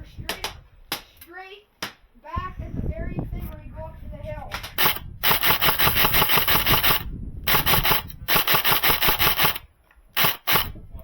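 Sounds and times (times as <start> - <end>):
airsoft gun firing bursts: 4.8 - 10.8.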